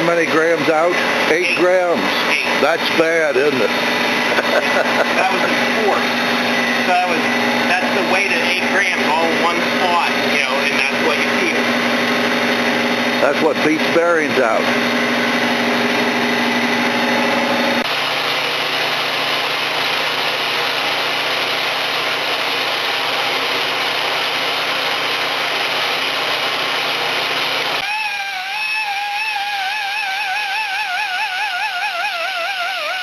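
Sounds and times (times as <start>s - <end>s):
machinery whirring: 0.0s - 18.9s.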